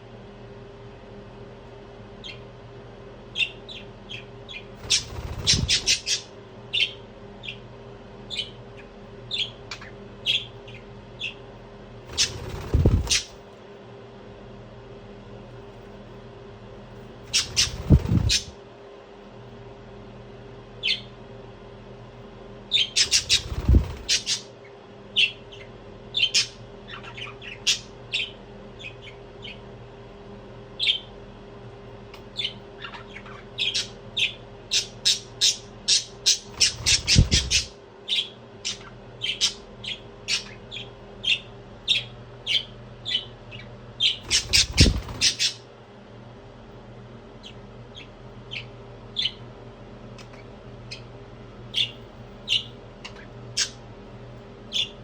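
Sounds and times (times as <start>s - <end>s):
faint steady hum: 0.0s - 55.0s
budgie chirping and squawking: 3.4s - 7.6s, 12.1s - 13.4s, 17.3s - 18.6s, 22.7s - 24.6s, 32.3s - 45.7s, 51.7s - 53.8s, 54.7s - 55.0s.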